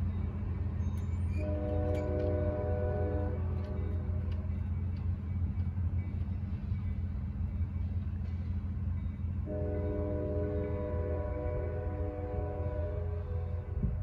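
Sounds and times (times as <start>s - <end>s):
train rumbling: 0.0s - 14.0s
sustained horn chord: 1.4s - 4.2s, 9.4s - 13.9s.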